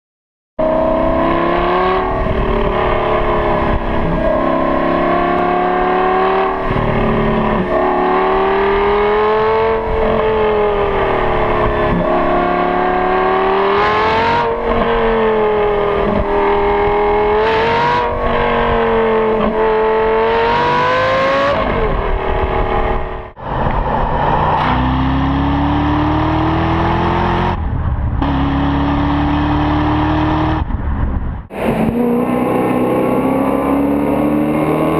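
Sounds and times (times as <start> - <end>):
car engines revving: 0.6 - 34.9.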